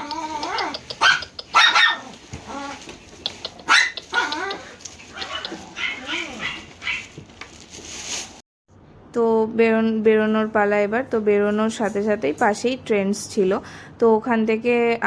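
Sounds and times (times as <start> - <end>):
dogs barking and yipping: 0.0 - 7.3.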